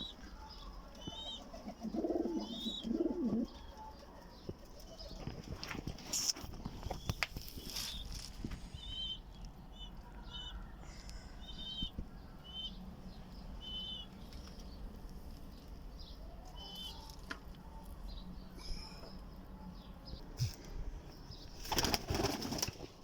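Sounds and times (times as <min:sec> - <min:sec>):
birds chirping: 0:00.0 - 0:22.6
pigeon wings flapping: 0:21.6 - 0:23.0.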